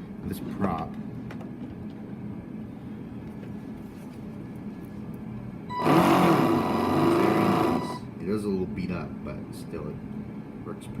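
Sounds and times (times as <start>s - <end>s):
electric motor whine: 5.7s - 8.0s.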